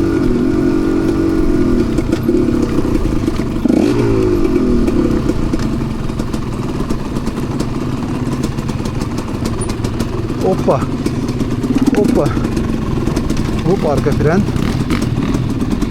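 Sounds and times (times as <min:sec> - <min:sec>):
dirt bike engine running: 0:00.0 - 0:15.9
clicks and clatter: 0:11.0 - 0:15.8.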